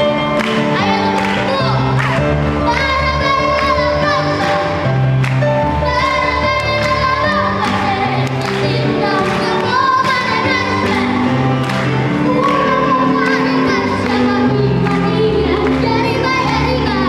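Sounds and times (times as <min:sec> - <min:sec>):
instrumental accompaniment with beat: 0:00.0 - 0:16.6
children's choir singing a carol: 0:00.8 - 0:17.0.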